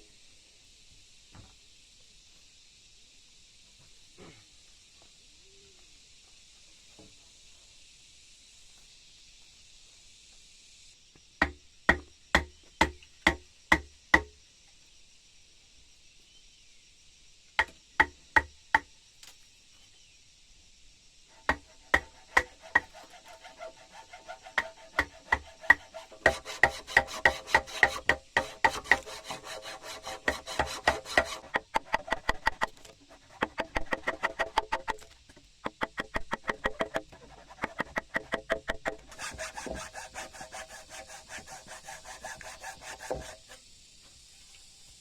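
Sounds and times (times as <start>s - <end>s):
hammer blows on wood: 21.5s - 35.0s.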